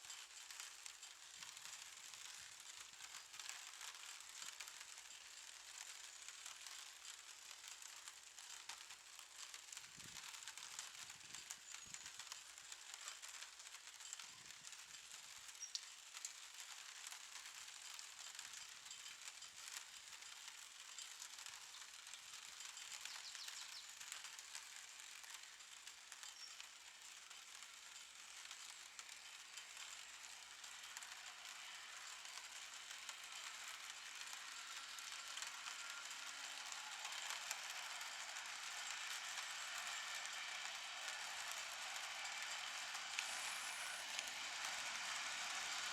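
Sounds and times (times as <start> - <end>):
light rain pattering: 0.0 - 45.9.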